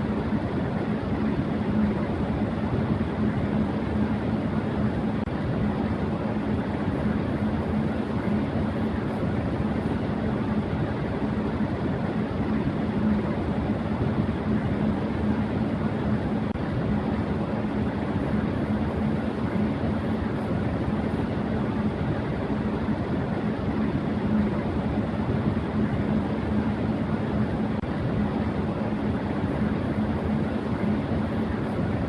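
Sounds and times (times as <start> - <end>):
electric fan running: 0.0 - 32.0.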